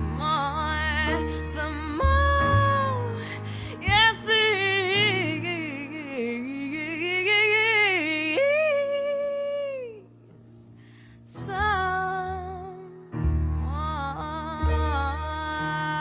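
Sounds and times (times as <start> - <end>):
deep bass notes: 0.0 - 5.6, 11.6 - 16.0
woman singing wordless notes: 0.0 - 10.1, 11.3 - 16.0
low musical accompaniment: 0.0 - 16.0
faint breath: 10.4 - 11.3.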